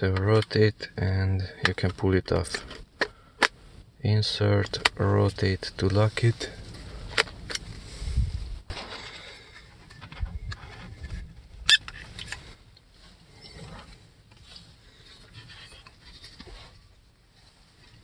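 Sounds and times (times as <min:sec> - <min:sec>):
plastic parts rattling and scraping: 0:01.6 - 0:03.6, 0:08.7 - 0:18.0.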